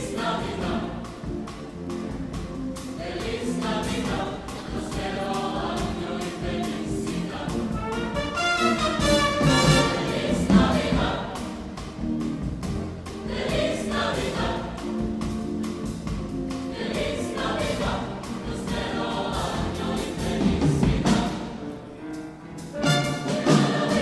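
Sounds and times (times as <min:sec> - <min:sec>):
choir singing: 0:00.0 - 0:21.9, 0:22.8 - 0:24.0.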